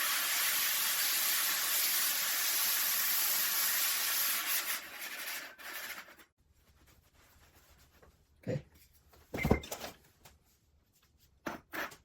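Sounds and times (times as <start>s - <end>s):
pot grinding on diamond disc: 3.6s - 6.3s.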